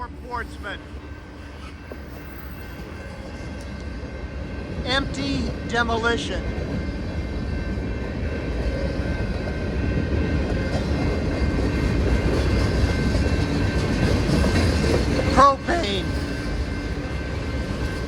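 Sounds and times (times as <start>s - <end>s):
freight train wheels clattering: 6.6s - 18.0s.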